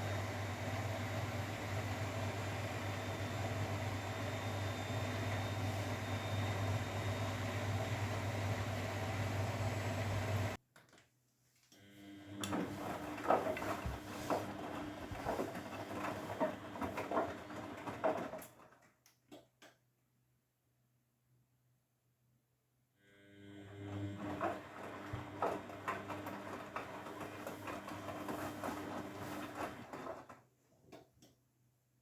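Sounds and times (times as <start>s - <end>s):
washing machine hum: 0.0s - 10.6s, 11.9s - 18.8s, 23.2s - 30.5s
washing machine motor whine: 0.0s - 10.6s, 11.8s - 18.4s, 23.0s - 30.3s
laundry tumbling and sloshing: 12.4s - 18.5s, 24.2s - 30.4s.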